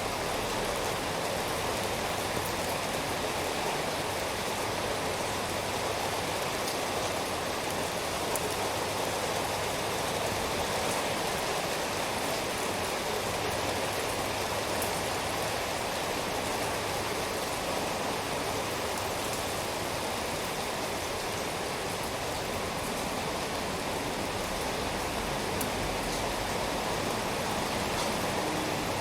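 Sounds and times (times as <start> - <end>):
steady rainfall: 0.0 - 29.0.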